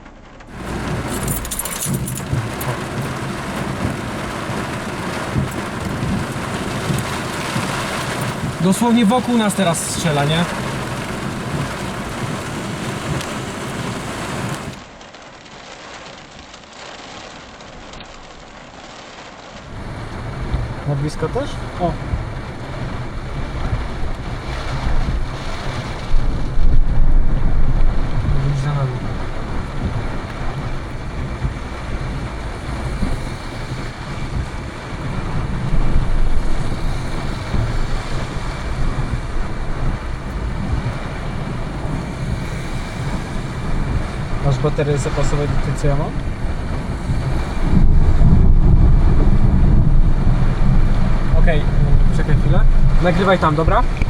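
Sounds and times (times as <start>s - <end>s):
steady rain: 0.0s - 54.0s
low thunder rumble: 19.7s - 54.0s
wind buffeting microphone: 21.7s - 54.0s.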